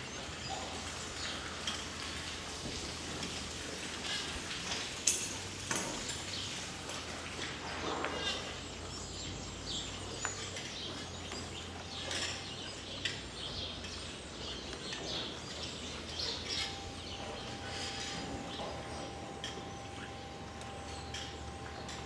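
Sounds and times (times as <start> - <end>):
small birds chirping: 6.1 - 22.0.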